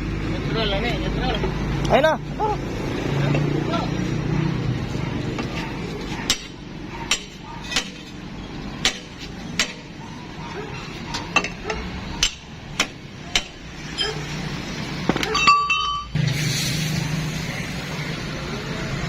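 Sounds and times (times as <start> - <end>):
hammer striking metal: 6.3 - 8.2, 8.8 - 10.0, 11.4 - 14.2.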